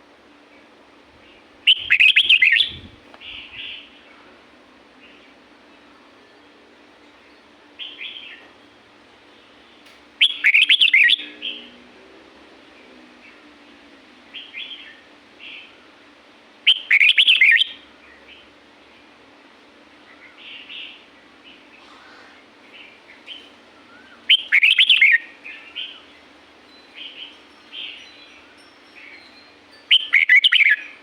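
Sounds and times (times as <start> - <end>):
bird warbling song: 1.2 - 4.0, 10.2 - 11.7, 16.7 - 18.5, 20.1 - 31.0.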